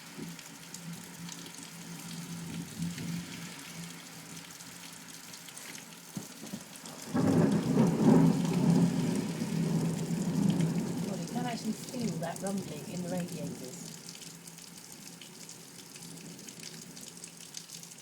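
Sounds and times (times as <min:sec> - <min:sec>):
heavy rain hissing: 0:05.5 - 0:14.0
thunder rumbling: 0:06.9 - 0:13.9.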